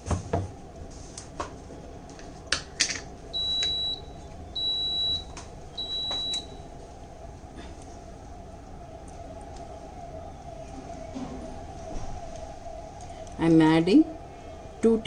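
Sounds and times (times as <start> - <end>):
high-pitched control panel beeps: 3.4 - 6.6.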